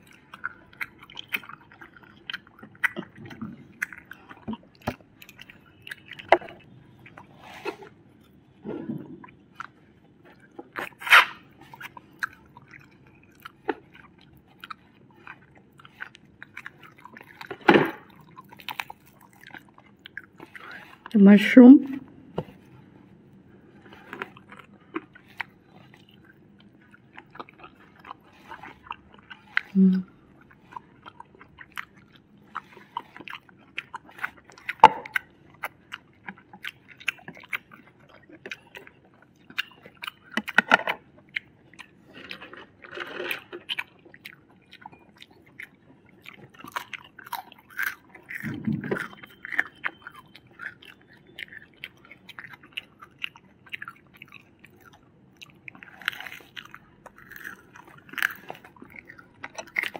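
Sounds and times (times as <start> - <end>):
people chewing food: 0.0 - 59.9.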